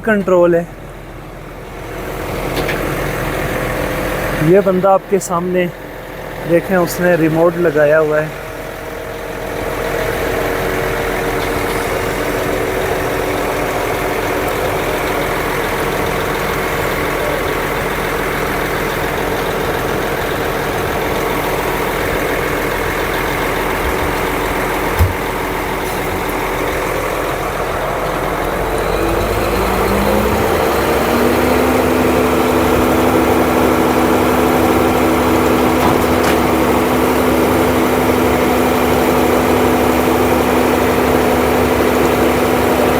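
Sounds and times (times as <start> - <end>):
heavy truck engines running: 0.0 - 42.9.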